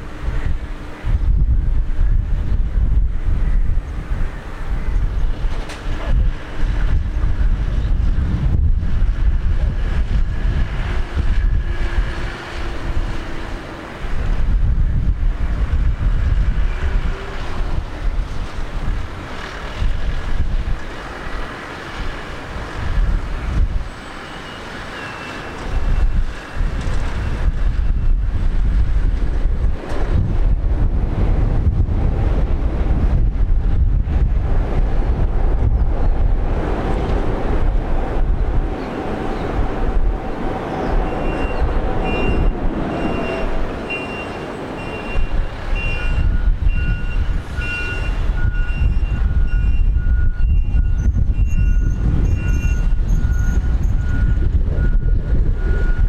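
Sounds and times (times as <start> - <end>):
low rumble: 0.0 - 20.8, 25.7 - 44.0
distant jet engines whining: 0.0 - 56.0
wind buffeting microphone: 0.0 - 56.0
reversing alarm beeping: 41.1 - 56.0.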